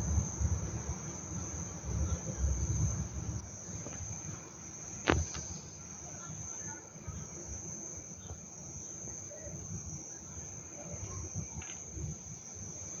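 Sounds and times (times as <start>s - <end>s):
low fluctuating rumble: 0.0s - 3.4s.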